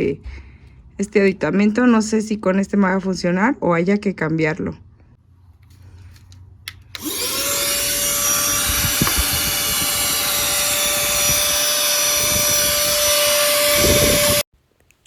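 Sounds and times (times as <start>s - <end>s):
handheld vacuum motor whine: 6.9s - 14.5s.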